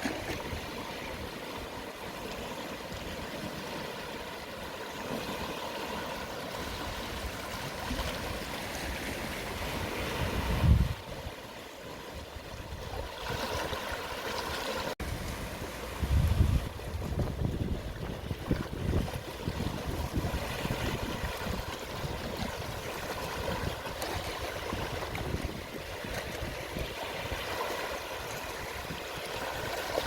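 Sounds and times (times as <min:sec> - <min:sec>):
sea waves washing onto beach: 0:00.0 - 0:30.0
wind buffeting microphone: 0:06.7 - 0:11.4, 0:15.0 - 0:30.0.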